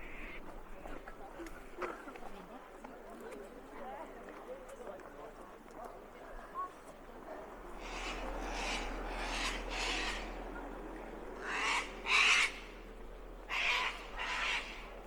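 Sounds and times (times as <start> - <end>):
bird harsh raspy calls: 7.8 - 10.6, 11.4 - 15.0.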